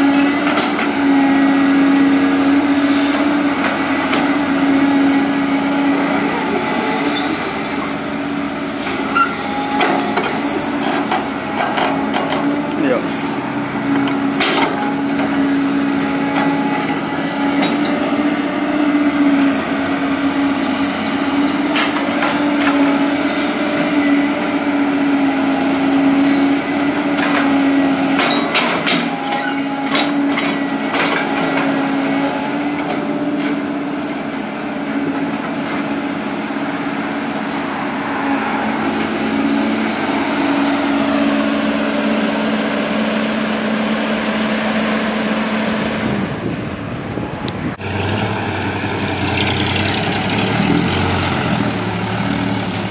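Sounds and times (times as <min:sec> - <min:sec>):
diesel engine running: 0:00.0 - 0:52.9
knocks and clanks: 0:13.9 - 0:15.4, 0:28.1 - 0:31.7.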